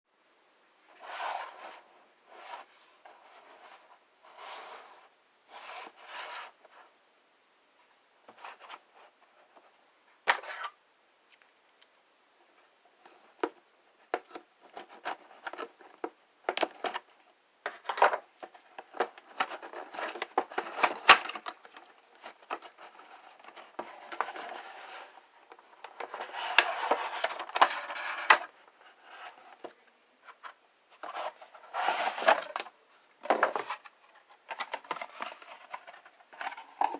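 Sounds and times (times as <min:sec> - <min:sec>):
cardboard and plastic rustling: 0:17.7 - 0:36.9.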